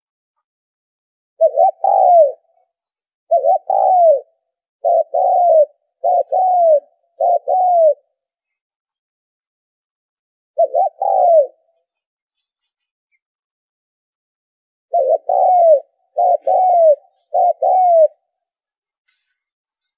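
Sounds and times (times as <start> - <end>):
dove cooing: 1.4 - 2.7, 3.3 - 8.4, 10.6 - 11.8, 14.9 - 18.5.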